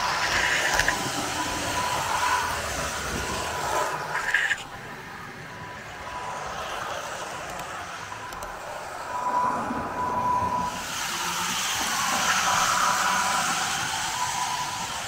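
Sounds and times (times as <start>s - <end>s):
model train running on track: 0.0s - 15.0s.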